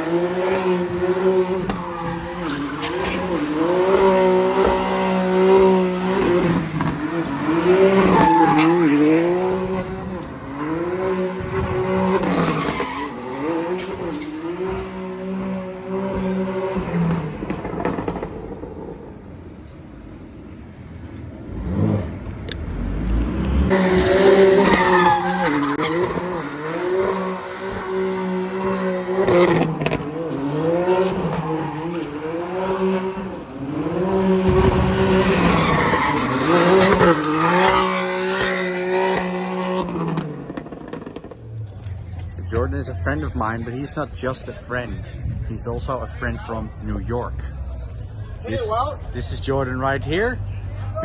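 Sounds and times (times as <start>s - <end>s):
tire squeal: 0.0s - 19.2s, 21.5s - 42.0s
car engine revving high: 0.0s - 43.5s.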